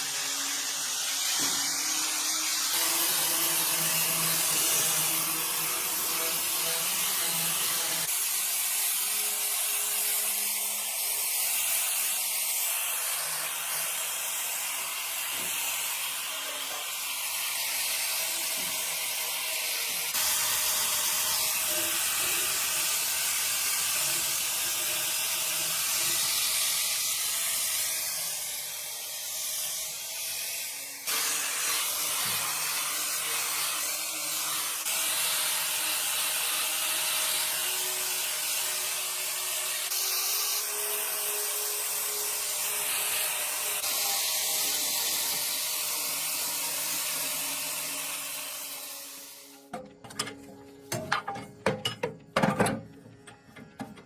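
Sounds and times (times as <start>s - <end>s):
spraying hiss: 0.0s - 49.6s.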